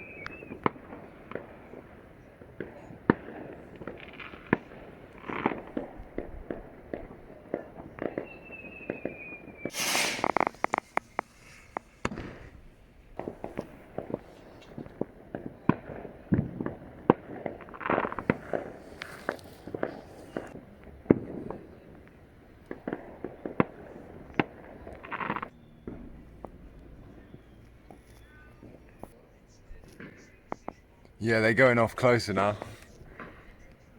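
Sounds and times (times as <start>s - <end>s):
rocket whistling: 0.0s - 4.7s, 7.6s - 15.9s, 22.9s - 29.1s
hissing firework burst: 0.0s - 26.3s
fireworks bangs and crackles: 0.0s - 33.9s.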